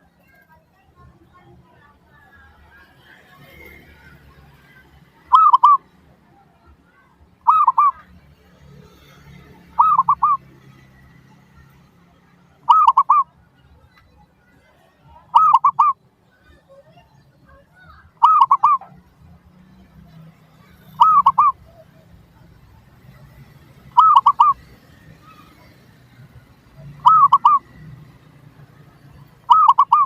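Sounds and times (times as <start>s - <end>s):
dove cooing: 5.2s - 5.9s, 7.4s - 8.1s, 8.8s - 10.8s, 12.6s - 13.3s, 15.2s - 16.6s, 17.8s - 19.2s, 20.1s - 28.4s, 29.2s - 30.0s.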